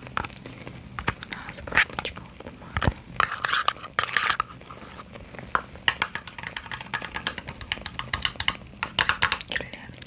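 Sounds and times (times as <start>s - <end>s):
tapping on small boxes: 5.6s - 9.6s.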